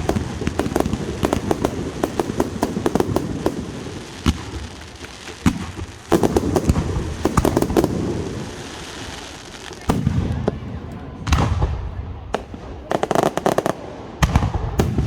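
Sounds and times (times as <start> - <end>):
fireworks popping and banging: 0.0 - 15.0.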